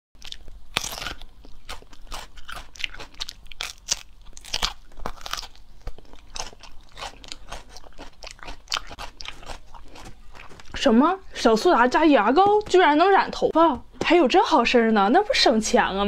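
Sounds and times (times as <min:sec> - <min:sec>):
crunchy vegetable being chewed: 0:00.2 - 0:11.6.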